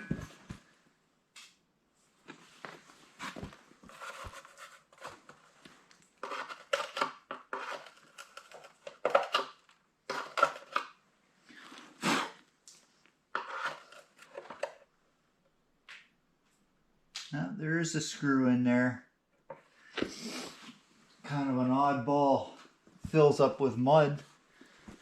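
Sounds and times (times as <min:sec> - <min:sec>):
plastic parts scraping and rattling: 0:03.2 - 0:11.0, 0:13.4 - 0:14.9.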